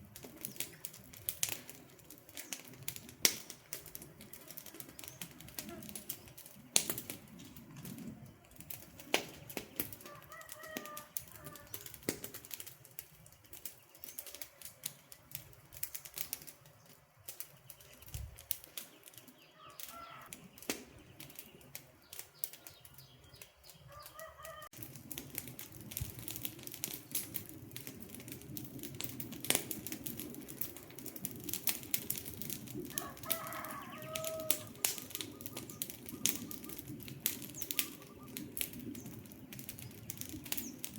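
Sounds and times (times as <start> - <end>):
low rush of flames: 0.0 - 40.9
wood fire crackling and popping: 0.0 - 40.9
bird calling: 19.3 - 24.7, 33.0 - 39.2.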